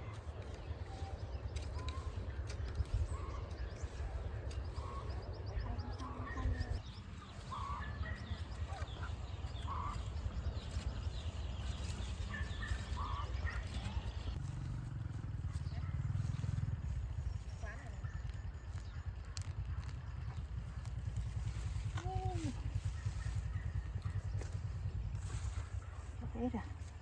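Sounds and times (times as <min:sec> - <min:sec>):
low wind rumble on microphone: 0:00.0 - 0:27.0
short bird calls: 0:02.9 - 0:14.4.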